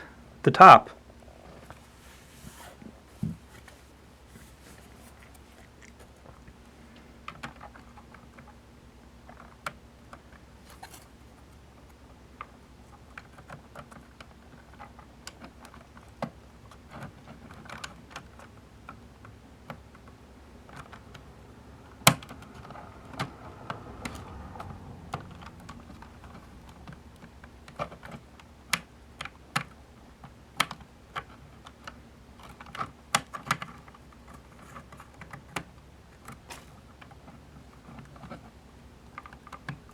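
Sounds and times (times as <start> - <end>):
acrylic panels clicking and tapping: 9.2 - 39.9.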